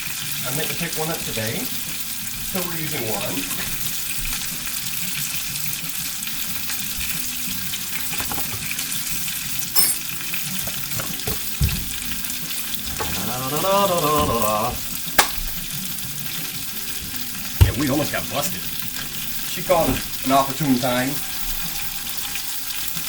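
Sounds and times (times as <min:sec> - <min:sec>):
chicken sizzling in a pan: 0:00.0 - 0:23.0.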